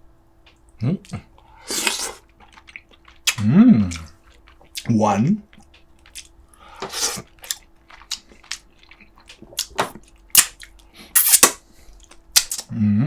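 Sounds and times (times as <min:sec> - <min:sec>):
chewing: 0:00.4 - 0:12.7
wet lip smacks and sucks: 0:01.7 - 0:04.9, 0:06.9 - 0:12.7.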